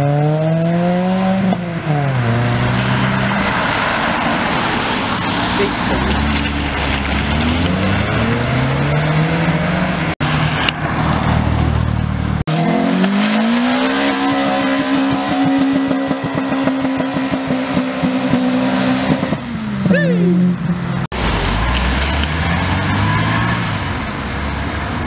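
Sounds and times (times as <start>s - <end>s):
car engine revving: 0.0s - 24.8s
car engine pulsing high note: 12.5s - 21.7s.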